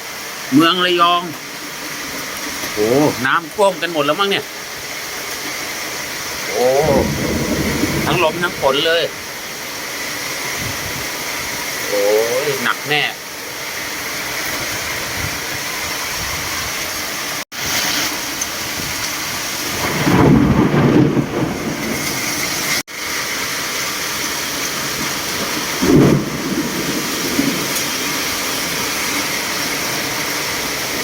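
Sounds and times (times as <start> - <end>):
heavy rain: 0.0 - 31.0
strong wind: 6.5 - 9.3, 10.5 - 11.6, 14.5 - 16.9
low rumbles: 6.5 - 9.4.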